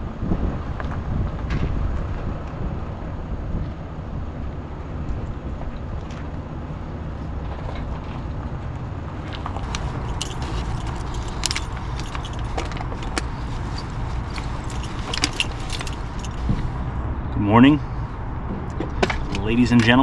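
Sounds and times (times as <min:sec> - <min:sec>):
vehicle engine rumble: 0:00.0 - 0:20.0
metallic jingling and clicking: 0:09.4 - 0:16.6.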